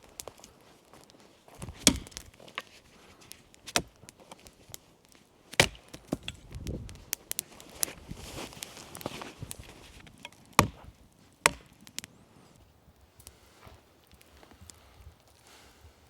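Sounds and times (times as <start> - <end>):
wood knocking and cracking: 1.5 - 12.1
axe blows chopping wood: 1.6 - 2.3, 3.7 - 4.0, 5.6 - 6.4, 10.6 - 11.7.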